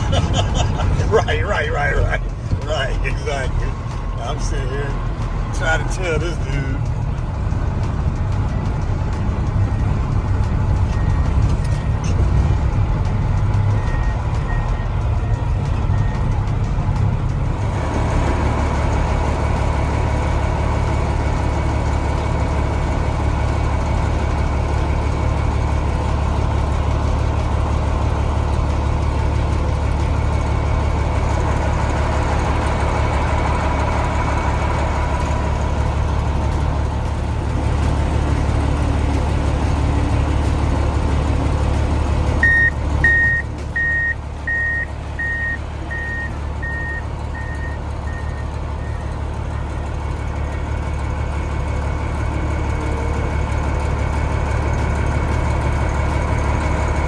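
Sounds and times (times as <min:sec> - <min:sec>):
diesel truck engine droning: 0:00.0 - 0:57.0
backup alarm beeping: 0:42.4 - 0:49.1.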